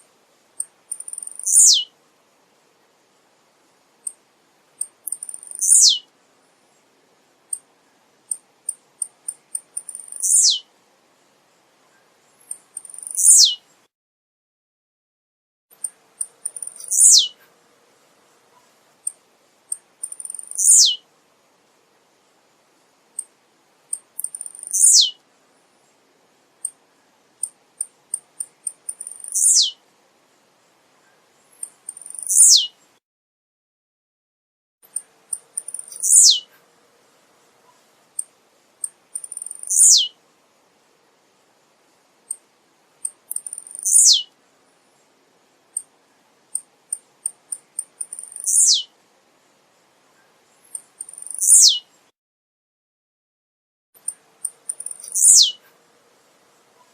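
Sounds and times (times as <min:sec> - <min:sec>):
bird singing: 0:00.6 - 0:01.9, 0:05.1 - 0:06.1, 0:09.0 - 0:10.7, 0:11.9 - 0:13.7, 0:15.8 - 0:17.4, 0:19.7 - 0:21.0, 0:24.2 - 0:25.2, 0:27.8 - 0:29.8, 0:31.1 - 0:32.8, 0:34.9 - 0:36.5, 0:38.8 - 0:40.2, 0:43.3 - 0:44.3, 0:46.6 - 0:48.9, 0:50.2 - 0:52.0, 0:54.0 - 0:55.6.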